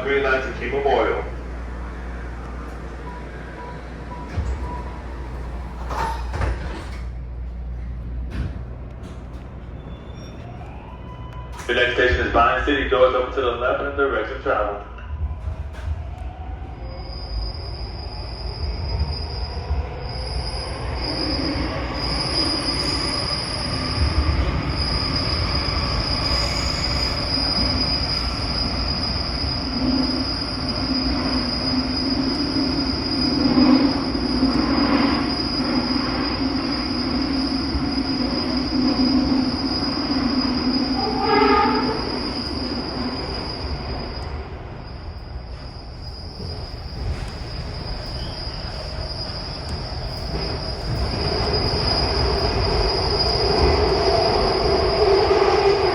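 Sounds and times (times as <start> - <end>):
train wheels rumbling: 0.0 - 55.9
high-pitched squeal: 16.8 - 55.9.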